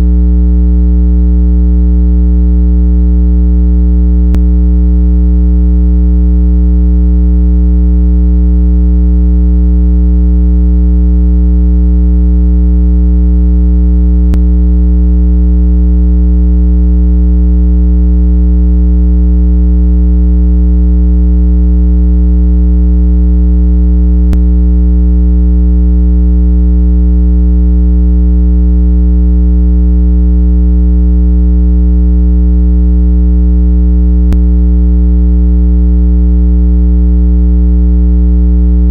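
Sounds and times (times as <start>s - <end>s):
low synthesized hum tone: 0.0s - 19.4s, 22.1s - 26.2s, 34.2s - 34.5s.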